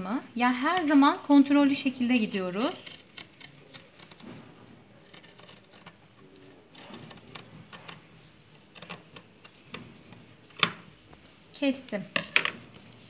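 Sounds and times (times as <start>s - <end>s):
scissors snipping fabric: 2.1s - 8.0s.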